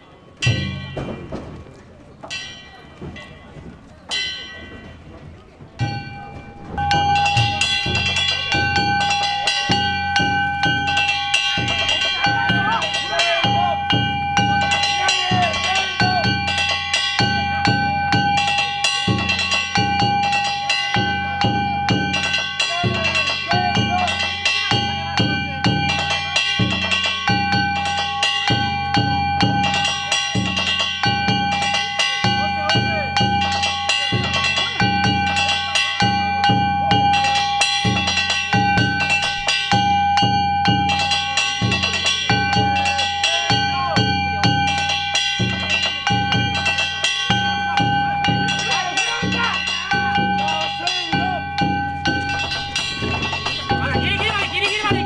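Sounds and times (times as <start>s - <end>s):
metallic gongs clanging: 0.0s - 55.0s
drums beaten fast: 5.8s - 55.0s
sustained high tone: 6.0s - 16.2s.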